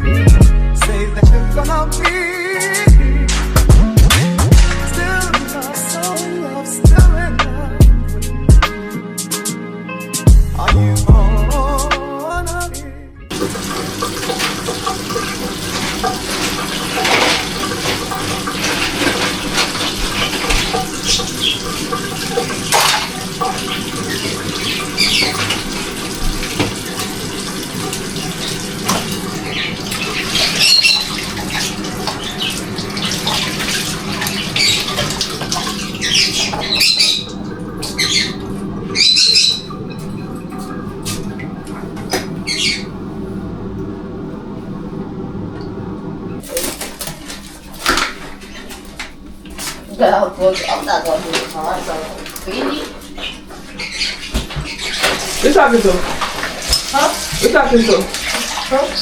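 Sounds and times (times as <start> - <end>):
tap water running into sink: 13.3 - 43.0, 46.4 - 59.0
bird squawking: 20.1 - 22.0, 23.7 - 25.7, 29.3 - 33.5, 34.1 - 39.9, 42.4 - 43.0, 51.8 - 55.8.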